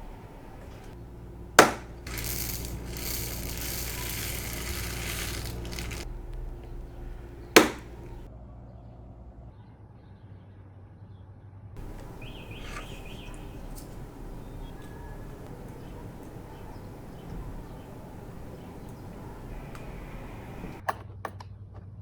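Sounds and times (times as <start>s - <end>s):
packaging clacking: 0.0s - 8.3s, 11.8s - 20.8s
packaging rustling and rattling: 0.0s - 8.3s.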